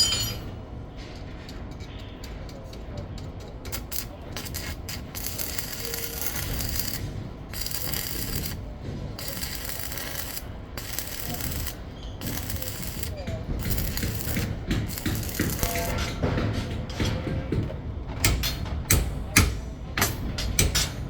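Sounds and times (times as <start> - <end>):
scraping and rasping strokes: 3.8 - 16.2.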